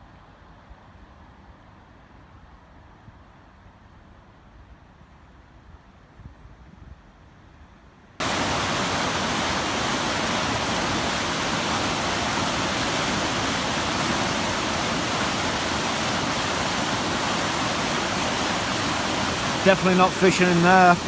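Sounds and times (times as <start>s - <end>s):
river water rushing: 8.2s - 21.0s.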